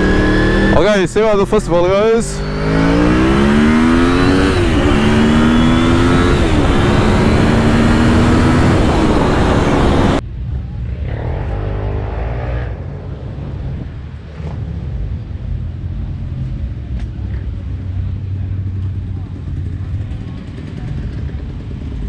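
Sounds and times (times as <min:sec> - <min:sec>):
motorcycle engine pulling hard: 0:00.0 - 0:10.2
low engine rumble: 0:00.0 - 0:22.0
wind noise: 0:02.4 - 0:10.2.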